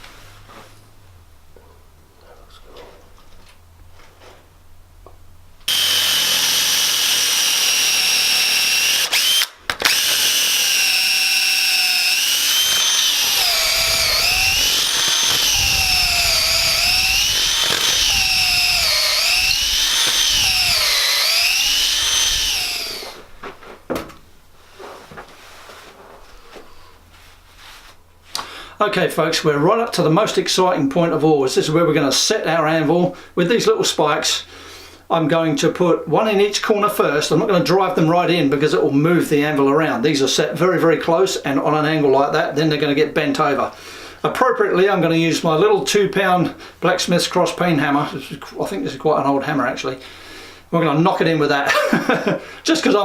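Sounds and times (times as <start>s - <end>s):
chainsaw cutting log: 5.7s - 23.3s.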